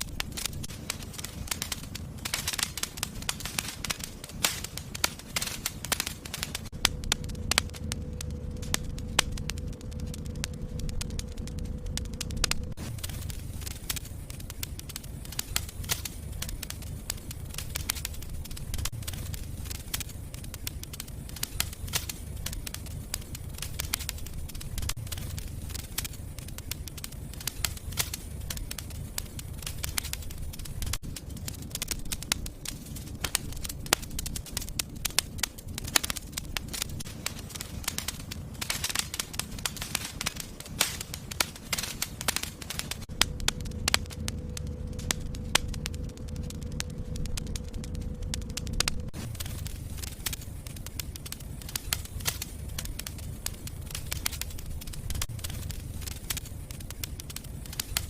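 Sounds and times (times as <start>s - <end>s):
fire crackling and popping: 0.0s - 58.0s
low steady rumble: 0.0s - 58.0s.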